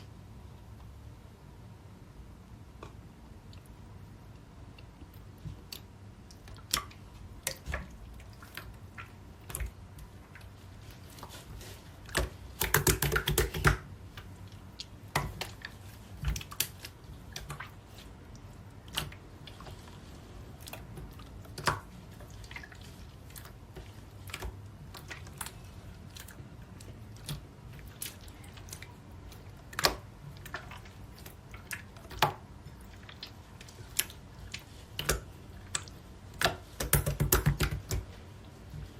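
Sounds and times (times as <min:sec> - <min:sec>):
slime clicking and popping: 0:12.1 - 0:13.9.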